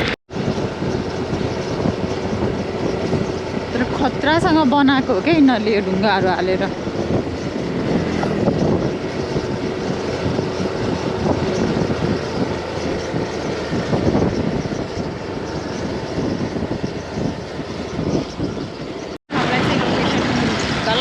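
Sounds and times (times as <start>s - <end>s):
vehicle engine and road noise: 0.0s - 21.0s.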